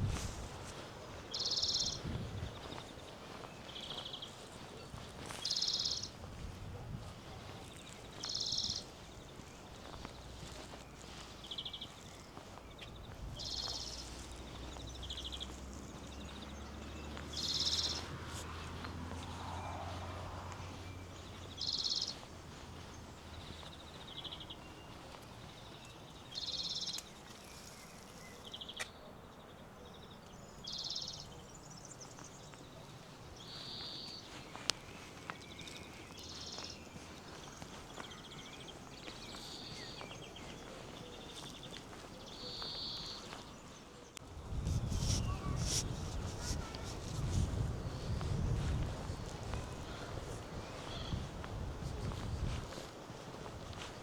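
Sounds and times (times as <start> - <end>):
faint footsteps: 0.0 - 29.0, 30.9 - 54.0
bird trilled chirping: 1.3 - 2.0, 5.4 - 6.1.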